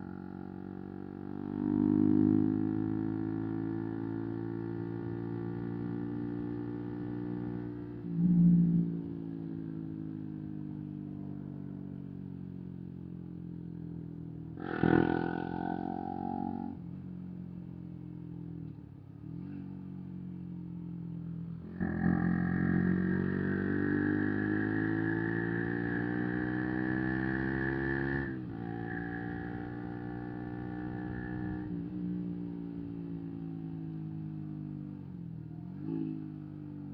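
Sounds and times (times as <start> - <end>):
motorcycle engine accelerating: 0.0 - 10.8, 14.5 - 36.9
motorcycle engine revving: 14.6 - 16.8, 21.5 - 33.0.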